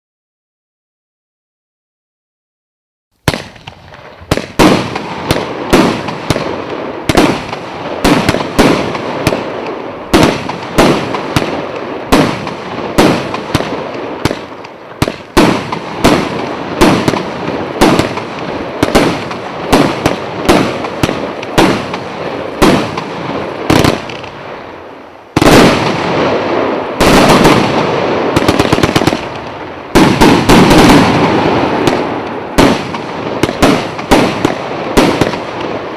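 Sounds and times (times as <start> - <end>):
firework cake shots firing: 3.2 - 24.4, 25.3 - 35.9.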